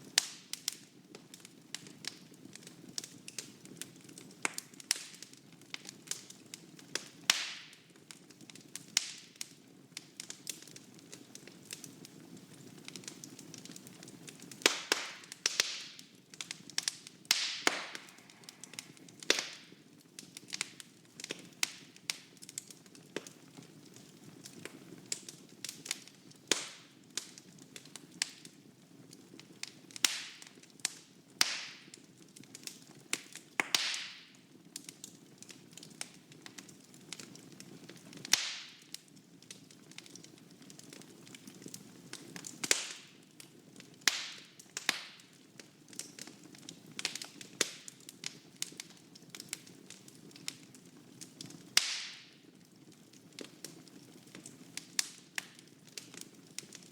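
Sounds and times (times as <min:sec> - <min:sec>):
wood fire crackling and popping: 0:00.0 - 0:56.9
low hiss of flames: 0:12.6 - 0:19.8.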